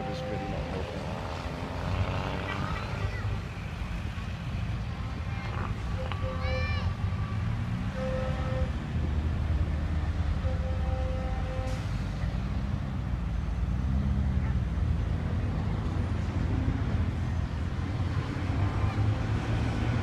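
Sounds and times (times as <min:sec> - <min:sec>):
racing engines: 0:00.0 - 0:20.0.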